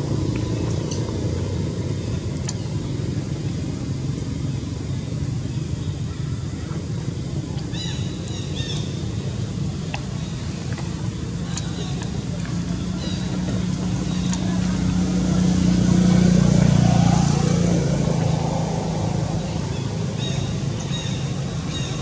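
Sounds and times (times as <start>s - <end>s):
vehicle engine passing by: 10.7s - 22.0s.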